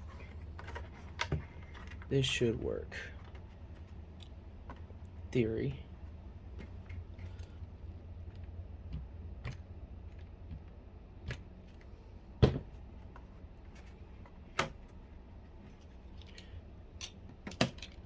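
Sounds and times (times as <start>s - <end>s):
low steady hum: 0.0s - 18.0s
plastic parts clicking and knocking: 0.1s - 2.1s, 16.2s - 18.0s.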